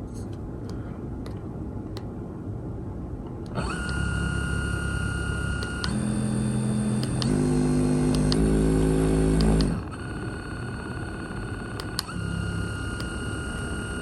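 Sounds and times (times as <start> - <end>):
massage gun motor hum: 3.5 - 14.0.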